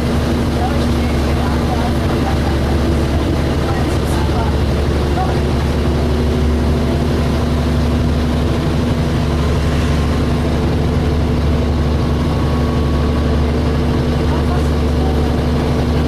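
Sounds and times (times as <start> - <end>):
bus diesel engine humming: 0.0 - 16.0.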